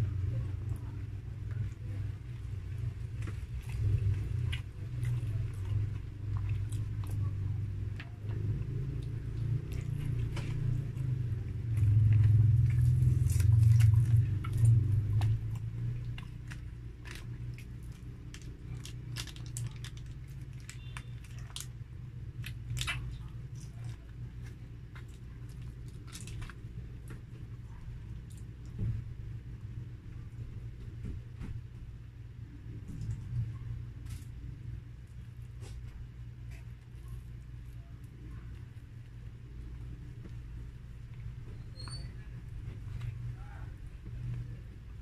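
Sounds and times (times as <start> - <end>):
low rumble: 0.0 - 45.0
person chewing food: 1.4 - 28.8.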